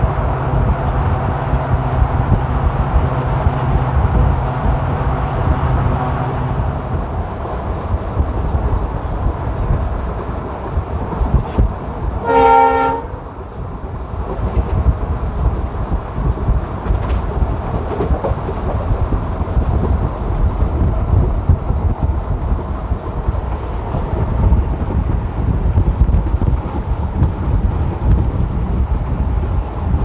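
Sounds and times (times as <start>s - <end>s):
rushing wind: 0.0s - 30.0s
train wheels rumbling on track: 0.0s - 30.0s
train horn blast: 12.2s - 13.3s.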